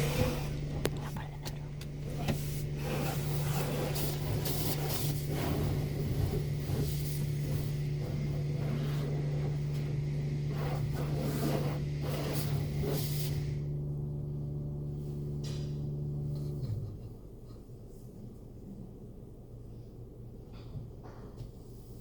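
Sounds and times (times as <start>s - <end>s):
water spraying against car: 0.0s - 1.2s, 2.0s - 13.6s
car wash machine hum: 0.0s - 18.7s.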